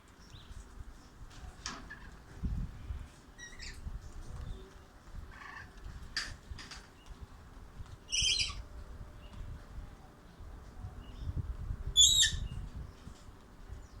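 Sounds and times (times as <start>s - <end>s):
wind rumbling on microphone: 0.2s - 14.0s
bird calling: 8.1s - 8.6s, 12.0s - 12.5s.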